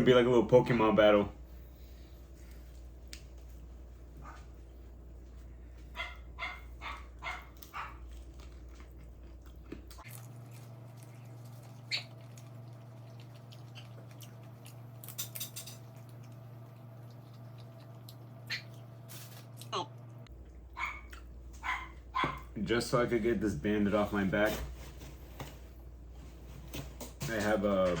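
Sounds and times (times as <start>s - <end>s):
dogs barking: 5.9s - 8.1s, 20.7s - 22.6s.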